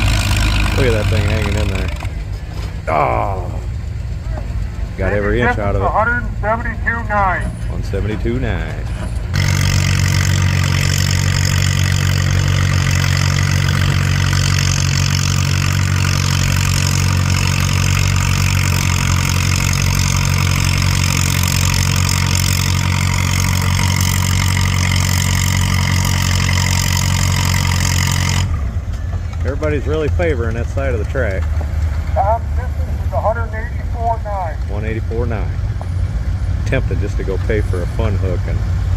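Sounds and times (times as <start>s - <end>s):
tractor engine idling: 0.0s - 38.9s.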